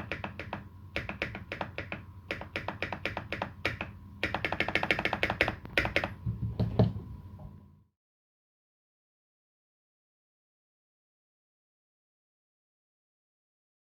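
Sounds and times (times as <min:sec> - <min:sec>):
mechanical keyboard typing: 0:00.0 - 0:06.2.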